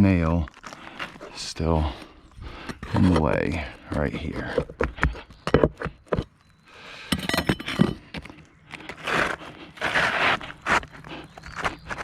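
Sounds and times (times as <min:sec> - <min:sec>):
shingles scraping and rustling: 0:07.1 - 0:12.0.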